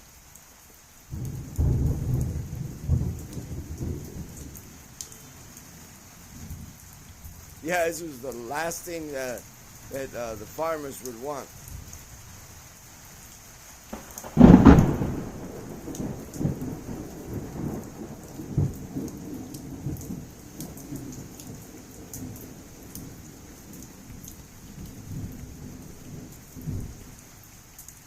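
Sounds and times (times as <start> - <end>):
heavy rain: 0.0 - 28.0
water drips ticking: 0.0 - 28.0
thunder crashing and rumbling: 1.1 - 4.7, 13.9 - 26.9.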